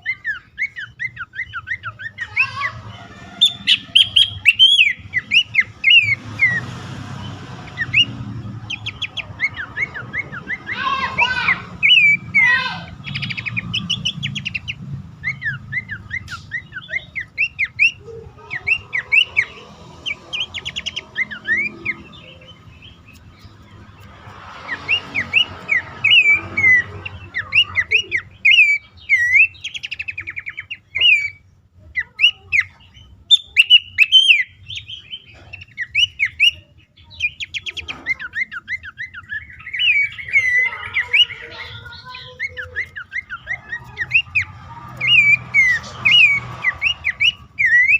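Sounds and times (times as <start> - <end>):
bird whistling calls: 0.0 - 6.7, 7.6 - 23.5, 24.6 - 47.9.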